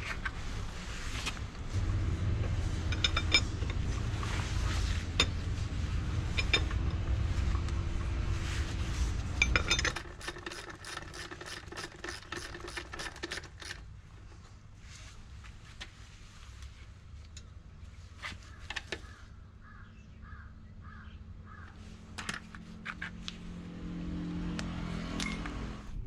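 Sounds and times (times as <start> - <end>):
low steady hum: 0.0 - 11.0
metal tools clinking: 2.8 - 3.9, 5.1 - 7.0, 9.4 - 13.8.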